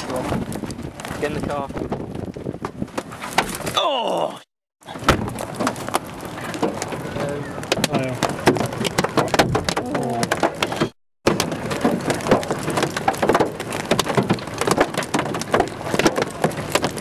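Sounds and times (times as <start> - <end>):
rain and hail pattering: 0.0 - 2.9, 4.8 - 17.0.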